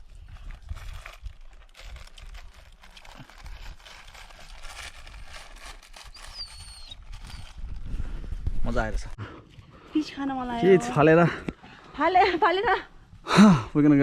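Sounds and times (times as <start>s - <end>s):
wind on microphone: 0.0s - 2.7s, 6.2s - 9.2s.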